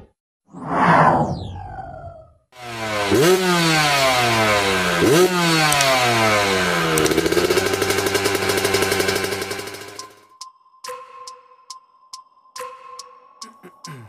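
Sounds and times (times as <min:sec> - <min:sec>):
dirt bike engine revving: 0:02.6 - 0:10.2.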